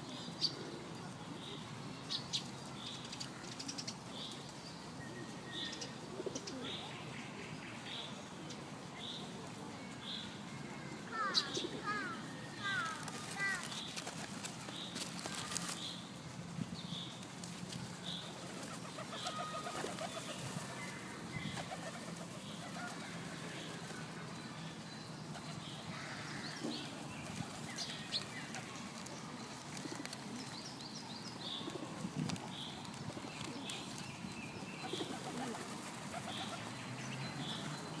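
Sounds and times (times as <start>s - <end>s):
pigeons cooing: 5.9s - 6.8s, 18.3s - 24.0s, 31.4s - 34.0s, 34.8s - 36.7s
pigeons flapping wings: 12.7s - 15.8s, 17.5s - 20.8s, 34.9s - 36.7s.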